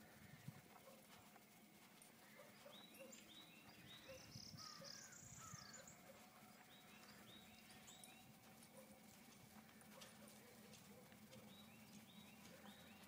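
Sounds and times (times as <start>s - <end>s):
faint bird chirps: 0.1s - 9.0s.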